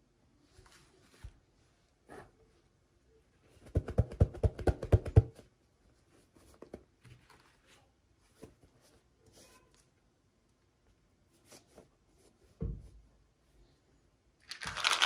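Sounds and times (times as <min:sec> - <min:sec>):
hands rustling toy packaging: 0:14.4 - 0:15.0.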